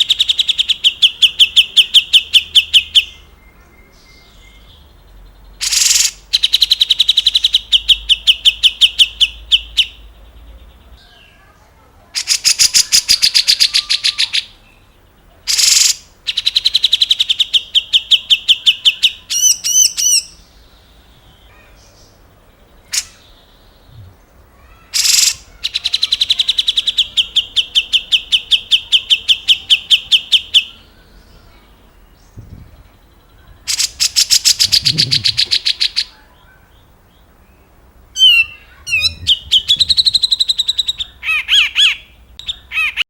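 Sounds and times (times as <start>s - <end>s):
bird singing chattering trills: 0.0s - 11.5s, 12.2s - 43.0s.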